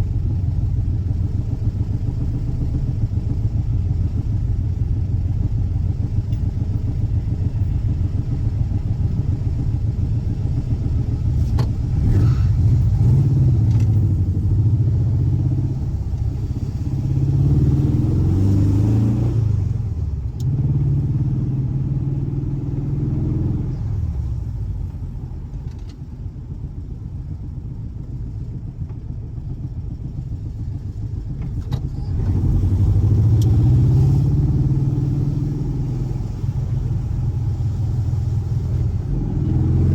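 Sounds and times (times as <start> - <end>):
engine revving: 11.4 - 24.0, 32.0 - 39.9.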